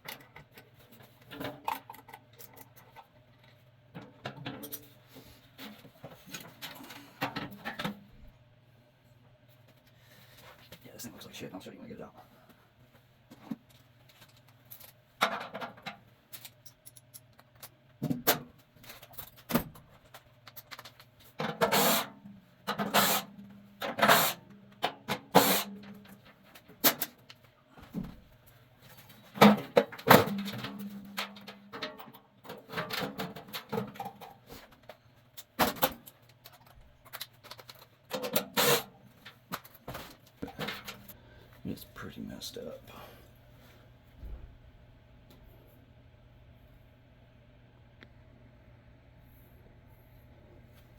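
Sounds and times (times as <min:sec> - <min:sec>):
metal clanks and scrapes: 0:00.0 - 0:08.0
steady low hum: 0:00.1 - 0:50.9.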